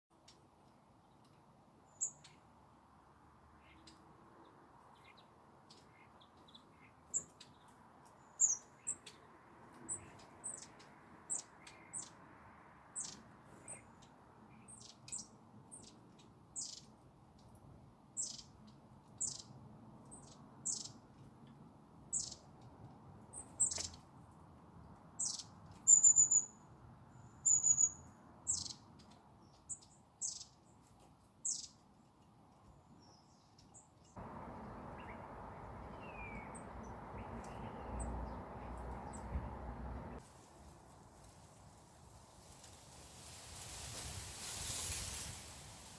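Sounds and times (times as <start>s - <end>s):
small birds calling: 1.0s - 2.6s, 3.5s - 17.6s, 18.2s - 24.2s, 25.1s - 40.2s
whistled bird notes: 25.2s - 26.6s, 27.2s - 28.8s, 35.9s - 38.2s.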